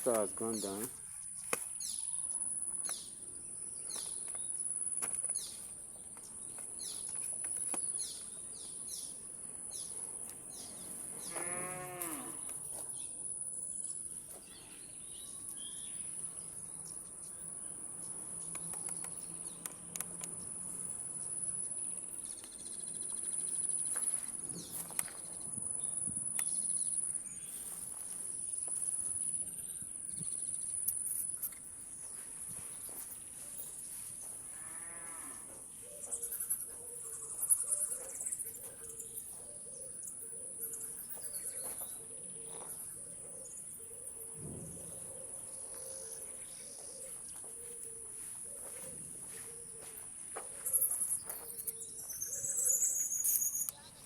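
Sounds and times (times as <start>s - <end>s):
cow mooing: 11.2s - 12.5s.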